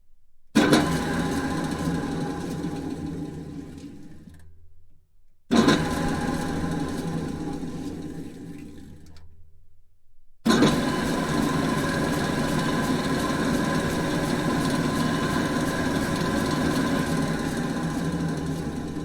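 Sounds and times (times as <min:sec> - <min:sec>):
drill press motor running: 0:10.5 - 0:19.0.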